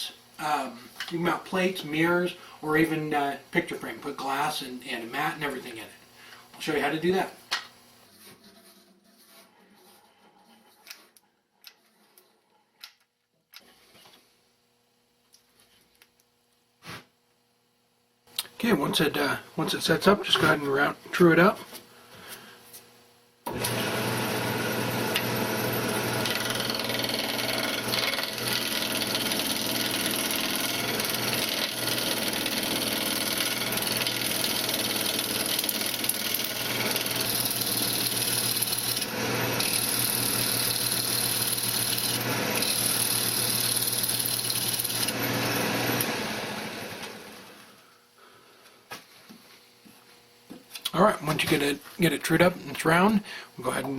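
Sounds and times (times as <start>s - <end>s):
turning tool cutting wood: 23.5s - 47.7s
wood lathe motor hum: 23.5s - 47.8s.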